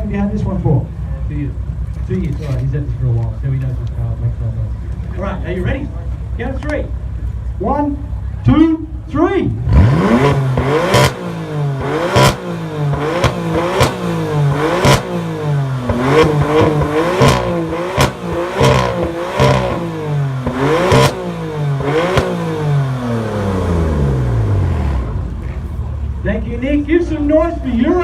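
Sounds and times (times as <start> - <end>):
engine revving in blips: 9.6 - 25.9
exhaust cracks: 9.6 - 26.9.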